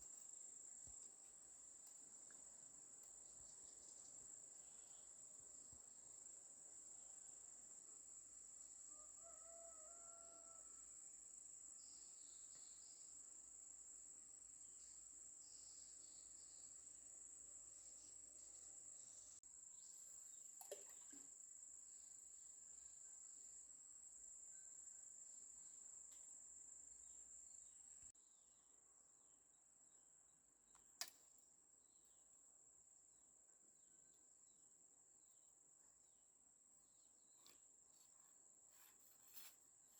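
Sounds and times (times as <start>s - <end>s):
insects droning: 0.0s - 28.2s.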